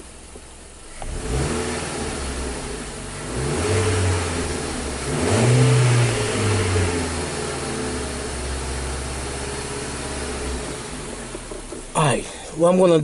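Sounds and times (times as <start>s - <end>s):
car engine revving: 0.0s - 12.4s.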